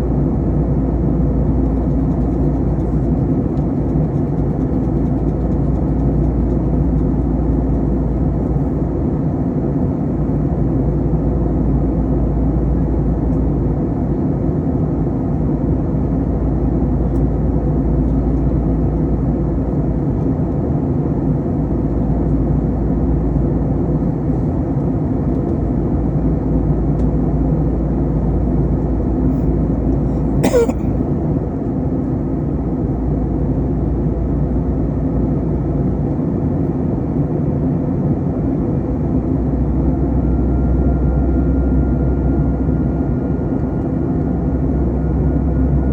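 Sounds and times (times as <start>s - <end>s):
airliner cabin rumble: 0.0s - 45.9s.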